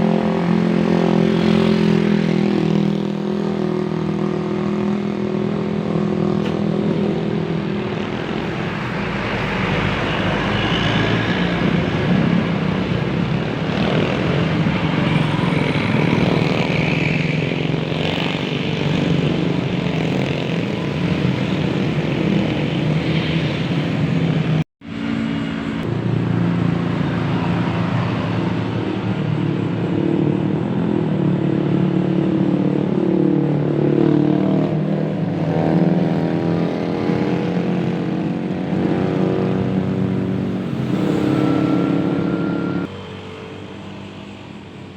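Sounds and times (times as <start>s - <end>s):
bus engine noise: 0.0s - 44.9s
multi-tone bus air horns: 41.0s - 42.9s.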